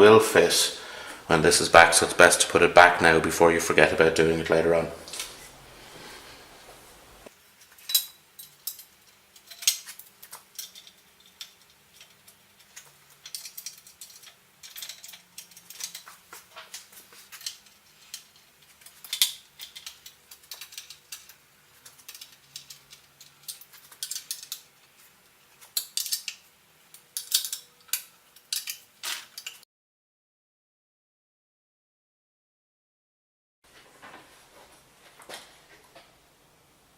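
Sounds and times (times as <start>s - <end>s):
metal parts and tools clinking: 7.6s - 29.6s.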